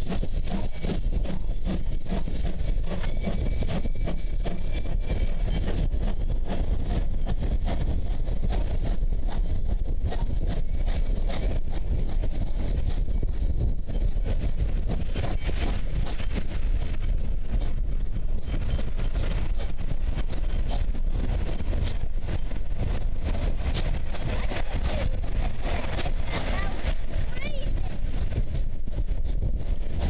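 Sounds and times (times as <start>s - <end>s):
train carriages rumbling past: 0.0s - 30.0s.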